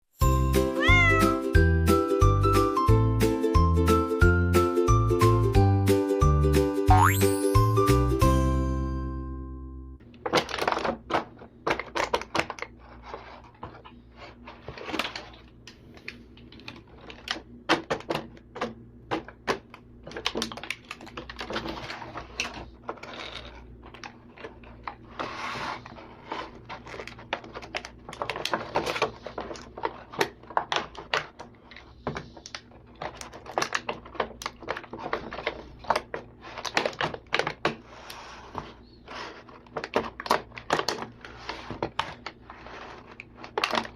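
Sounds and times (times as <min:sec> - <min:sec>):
plastic toys clicking together: 0:16.4 - 0:24.9.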